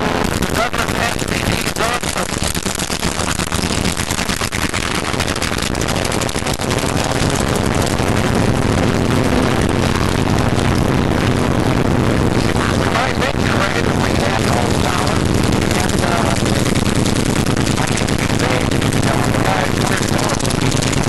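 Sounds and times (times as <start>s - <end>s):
propeller aircraft engine running: 0.0s - 21.0s.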